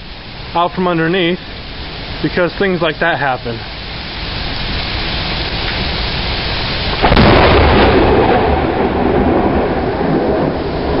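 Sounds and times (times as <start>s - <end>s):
heavy rain falling: 0.0s - 11.0s
thunder clap and rumble: 6.8s - 11.0s.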